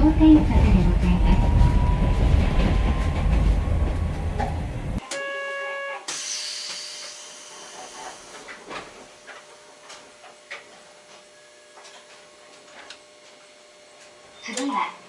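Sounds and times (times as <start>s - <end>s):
streetcar rumble and rattle: 0.0s - 5.0s
hiss of air: 6.1s - 9.0s.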